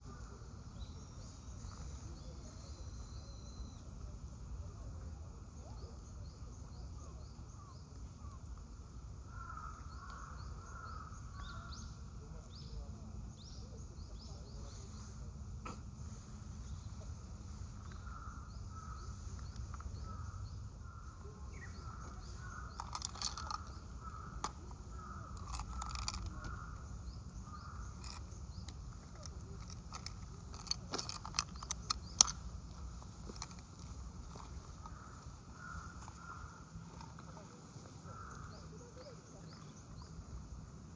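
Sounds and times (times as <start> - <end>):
small birds chirping: 0.0 - 40.9
low steady rumble: 0.1 - 40.9
sharp clicks: 28.0 - 35.0.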